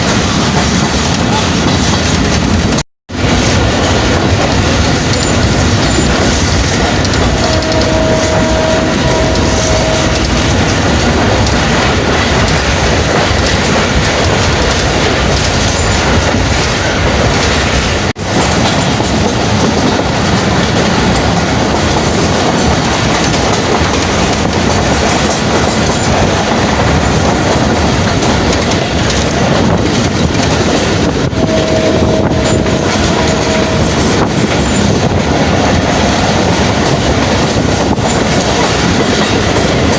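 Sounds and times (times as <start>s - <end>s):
train rumbling and rattling: 0.0s - 39.9s
wheels clacking on rails: 0.0s - 39.9s
steady tone: 7.1s - 12.2s.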